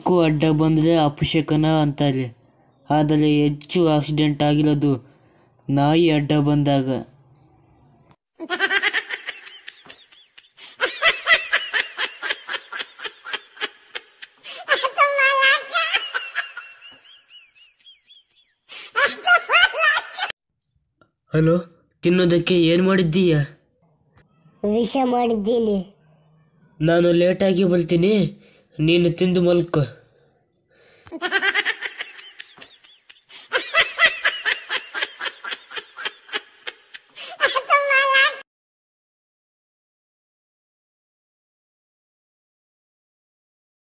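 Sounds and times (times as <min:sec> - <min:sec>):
high-pitched comedy laugh: 0:08.4 - 0:20.3, 0:31.2 - 0:38.4.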